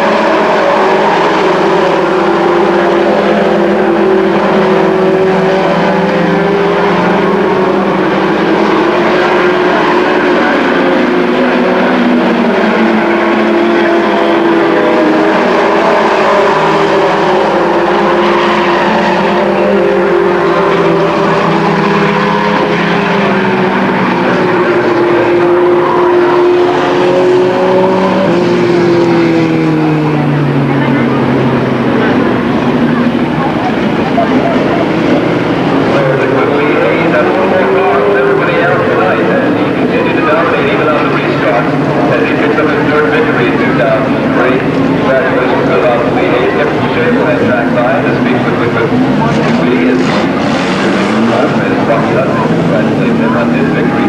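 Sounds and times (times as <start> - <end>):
race truck engines racing: 0.0 - 54.0.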